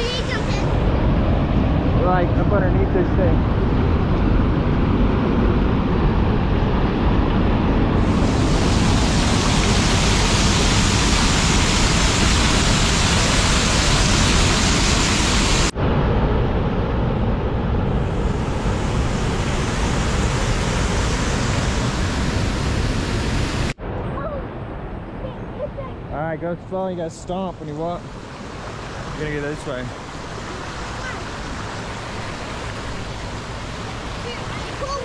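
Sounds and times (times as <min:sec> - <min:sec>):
waterfall rushing: 0:00.0 - 0:04.5, 0:05.4 - 0:15.8, 0:18.2 - 0:23.8, 0:26.4 - 0:35.0.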